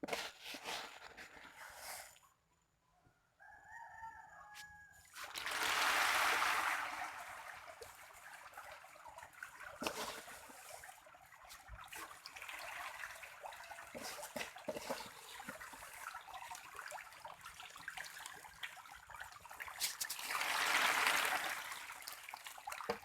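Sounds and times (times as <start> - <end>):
rooster crowing: 3.4 - 5.0
catfish splashing at water surface: 5.1 - 23.0.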